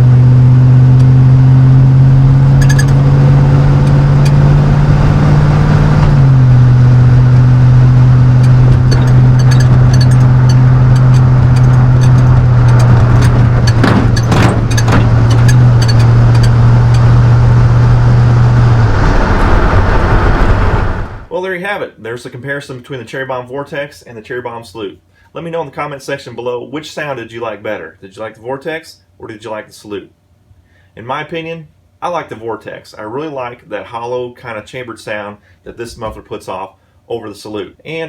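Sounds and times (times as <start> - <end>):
low exhaust drone under load: 0.0 - 21.3.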